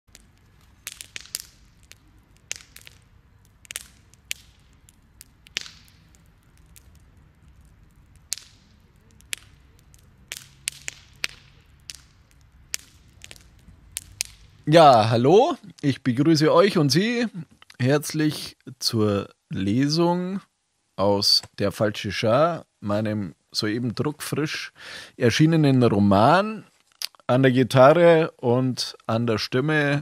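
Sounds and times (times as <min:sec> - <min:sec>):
campfire crackling: 0:00.0 - 0:19.8.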